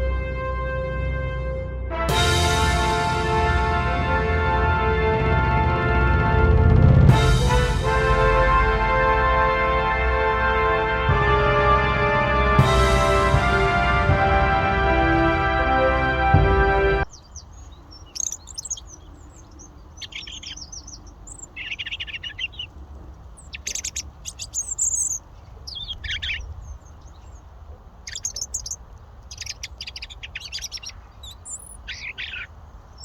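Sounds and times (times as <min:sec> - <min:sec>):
robin singing: 0:17.0 - 0:33.0.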